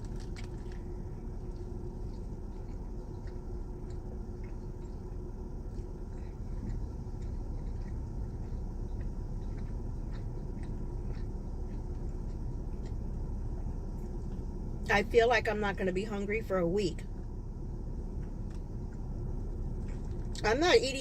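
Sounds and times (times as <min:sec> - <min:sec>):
person chewing food: 0:00.0 - 0:14.9, 0:17.1 - 0:20.4
low rumble: 0:00.0 - 0:21.0.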